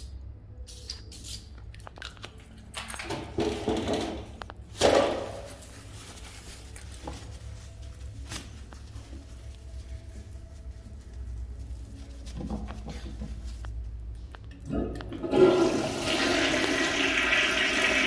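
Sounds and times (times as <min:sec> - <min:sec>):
low steady hum: 0:00.0 - 0:16.7
clicks and clinks of small objects: 0:00.7 - 0:15.2
rustle of handling: 0:04.2 - 0:14.6.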